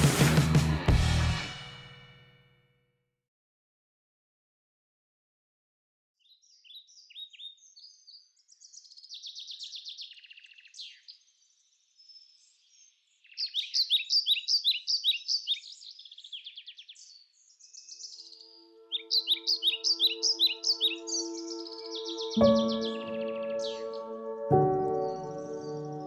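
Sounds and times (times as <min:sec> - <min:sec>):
birds chirping and trilling: 0:06.2 - 0:26.0.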